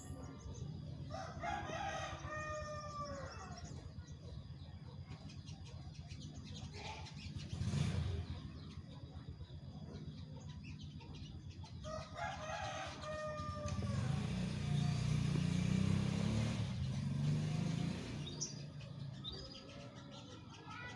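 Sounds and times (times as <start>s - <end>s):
small birds chirping: 0.0s - 20.9s
rooster crowing: 1.1s - 3.8s, 11.8s - 14.9s.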